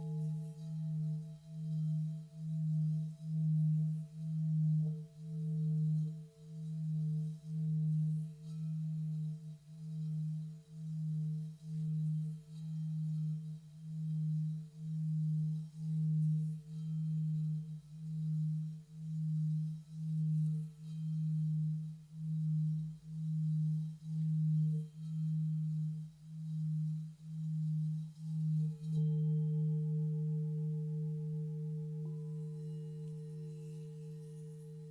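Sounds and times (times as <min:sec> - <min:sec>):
singing bowl tone: 0:00.0 - 0:34.9.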